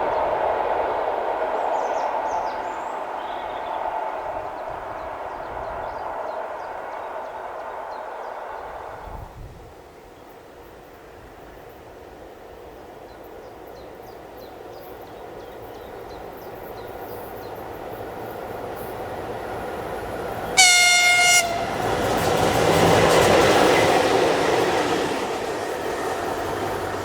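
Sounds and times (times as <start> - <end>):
rushing wheel and rail noise: 0.0 - 27.0
train rumble: 0.0 - 27.0
train horn blast: 20.4 - 22.5.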